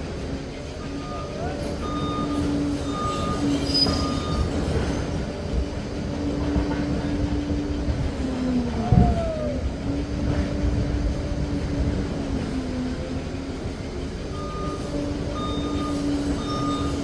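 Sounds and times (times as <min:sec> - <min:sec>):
rumbling track noise: 0:00.0 - 0:17.0
reversing alarm beep: 0:00.8 - 0:04.6, 0:14.3 - 0:17.0
brief falling squeal: 0:00.9 - 0:04.6, 0:14.4 - 0:17.0.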